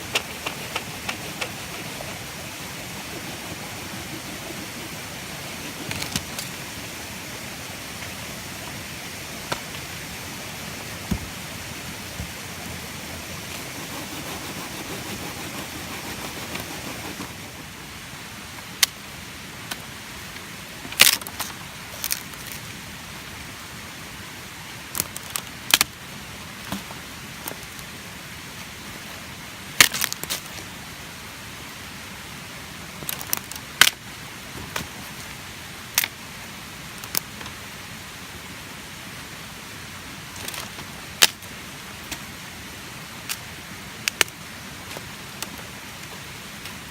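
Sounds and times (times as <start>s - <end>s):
outdoor hiss: 0.0s - 46.9s.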